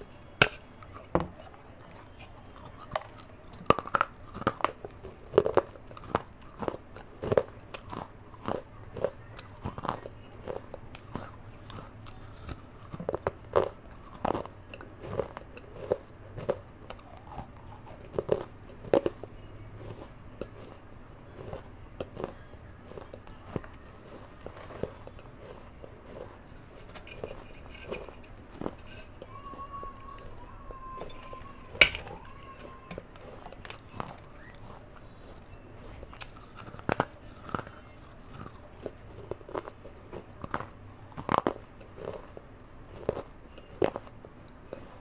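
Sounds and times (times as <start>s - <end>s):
person chewing clay pot crunches: 0.0s - 45.0s.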